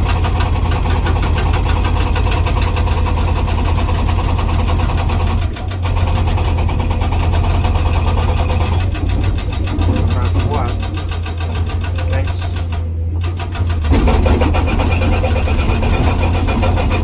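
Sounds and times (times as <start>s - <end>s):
excavator diesel engine: 0.0s - 17.0s
hydraulic rock breaker hammering: 0.0s - 17.0s.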